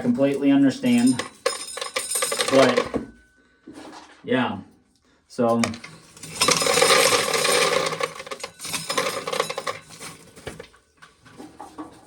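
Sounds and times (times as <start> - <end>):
corn sheller rattling: 0.0 - 3.0, 5.5 - 10.8.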